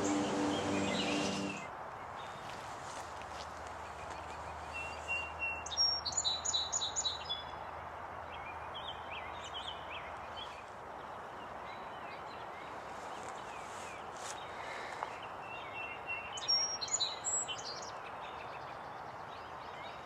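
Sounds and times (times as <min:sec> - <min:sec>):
background hiss: 0:00.0 - 0:01.7
bird chirps: 0:00.0 - 0:01.7
songbird singing: 0:00.0 - 0:02.6, 0:03.8 - 0:20.0.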